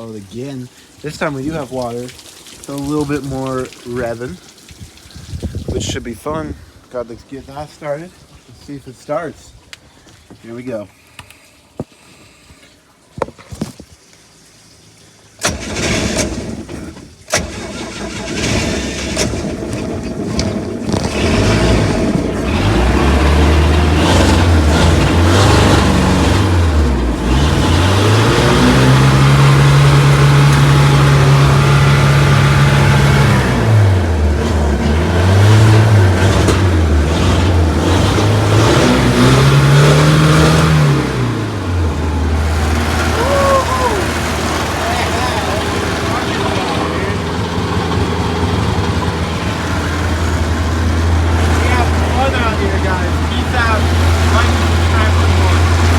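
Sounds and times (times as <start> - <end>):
boat engine starting and revving: 15.3 - 55.9.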